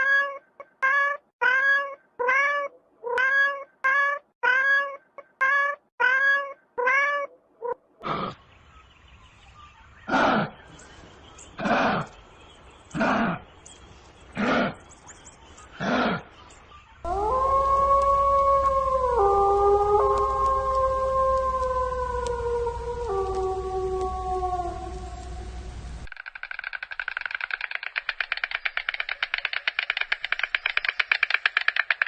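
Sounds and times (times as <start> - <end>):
cat meowing: 0.0 - 7.8
animal calling low: 17.0 - 25.5.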